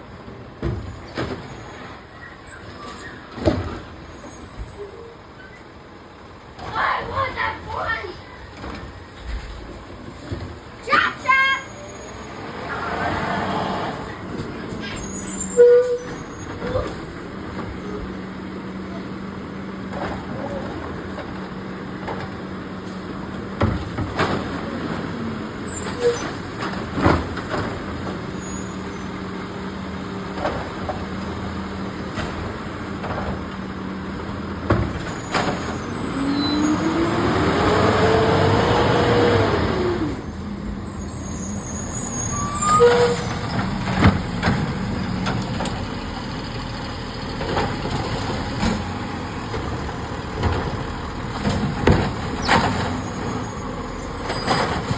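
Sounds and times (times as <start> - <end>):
garbage truck running: 0.0 - 54.9
clanks and knocks: 47.4 - 53.0.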